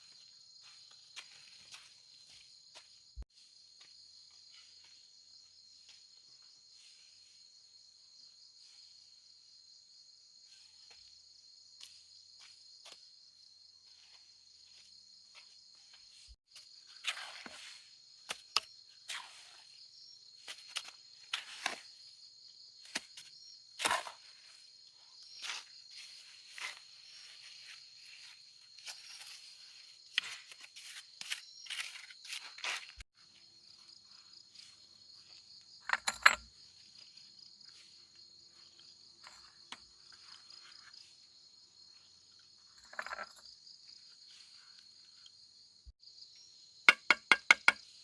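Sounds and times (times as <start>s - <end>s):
insects chirping: 0.0s - 48.0s
knocks and scrapes: 25.3s - 33.0s, 42.6s - 43.5s.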